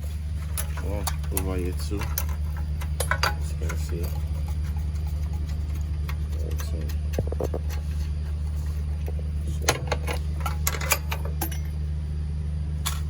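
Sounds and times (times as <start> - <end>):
low hum: 0.0 - 13.0
spanner clinking on metal: 0.5 - 8.4, 9.6 - 11.8.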